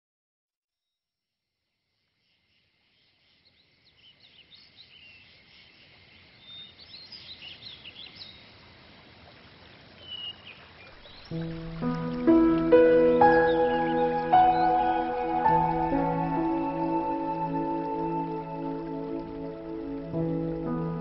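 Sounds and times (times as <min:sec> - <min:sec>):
birds chirping and whistling: 0:13.0 - 0:20.0.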